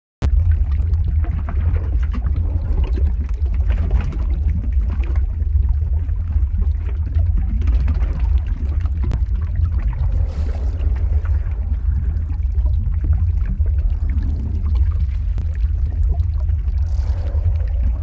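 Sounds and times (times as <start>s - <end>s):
bubbling crackling noise: 0.2s - 18.0s
deep rumble: 0.2s - 18.0s.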